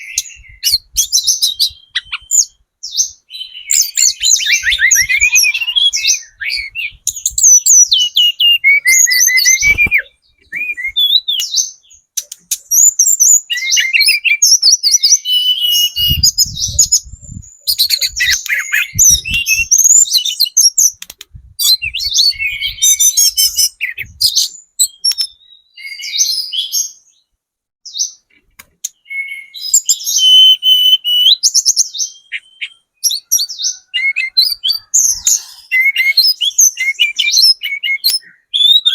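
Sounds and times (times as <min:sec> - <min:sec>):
songbird chattering and trilling: 0:00.0 - 0:27.2, 0:27.9 - 0:38.9.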